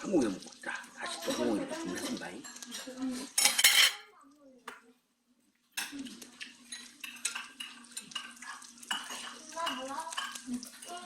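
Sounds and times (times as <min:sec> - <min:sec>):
tableware clinking and clattering: 0:01.2 - 0:04.1, 0:06.6 - 0:11.0.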